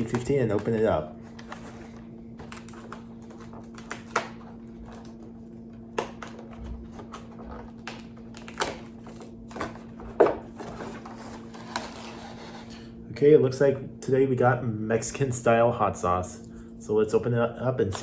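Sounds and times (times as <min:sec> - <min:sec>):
cardboard rustling: 0:06.1 - 0:12.7.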